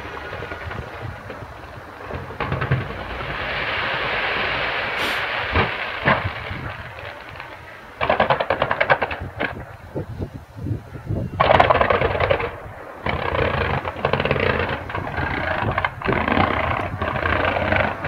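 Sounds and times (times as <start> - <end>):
firework bangs: 0.0 - 18.0
firework crackling: 0.0 - 18.0
firework hissing rush: 2.7 - 8.0.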